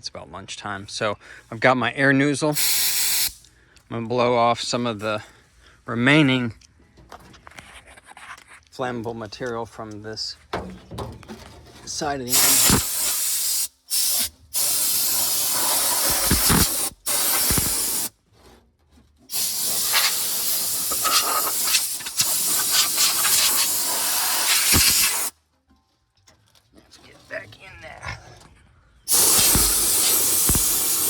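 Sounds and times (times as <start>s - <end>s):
compressed air blow gun hissing: 2.6s - 3.5s, 12.3s - 18.1s, 19.3s - 25.3s, 29.1s - 31.0s.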